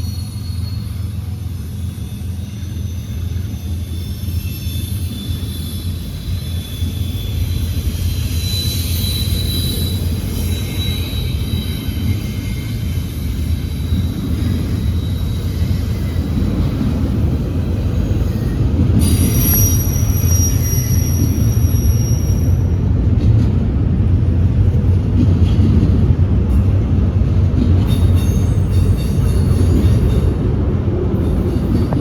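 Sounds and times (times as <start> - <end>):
high-pitched wheel squeal: 0.0 - 22.8
train wheels rumbling on rail: 0.0 - 32.0.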